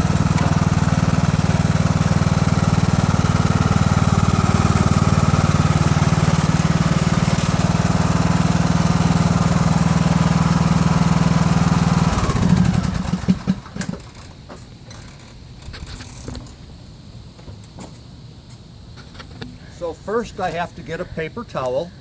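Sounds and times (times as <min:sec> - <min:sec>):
lawn tractor engine running: 0:00.0 - 0:15.3.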